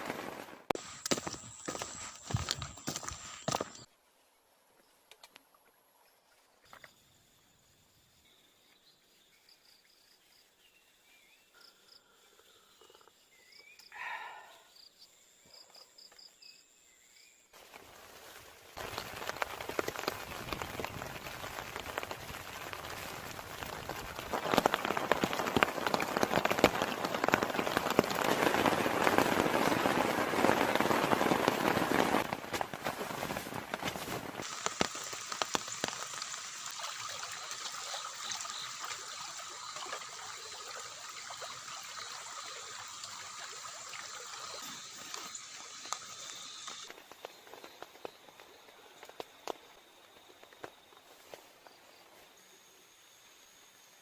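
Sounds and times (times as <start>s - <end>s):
heavy rain: 18.8s - 37.5s.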